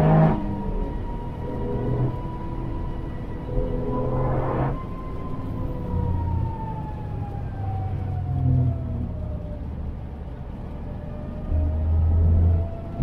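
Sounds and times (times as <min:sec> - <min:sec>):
engine and road drone: 0:00.0 - 0:13.0
turbo whine falling in pitch: 0:03.5 - 0:04.8.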